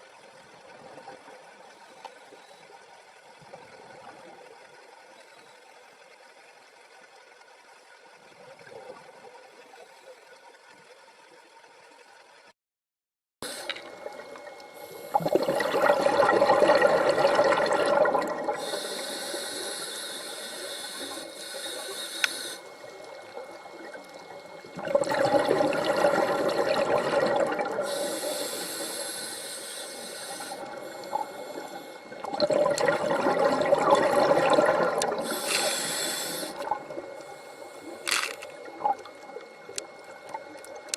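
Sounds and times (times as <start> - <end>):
water splashing and gurgling: 13.6 - 40.9
faint hiss: 18.6 - 24.5, 27.8 - 32.2, 35.1 - 39.8.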